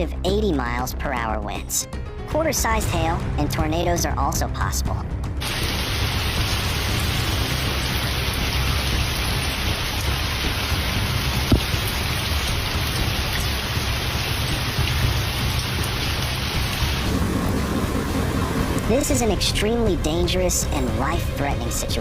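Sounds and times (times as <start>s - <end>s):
heavy rain pouring: 5.4s - 22.0s.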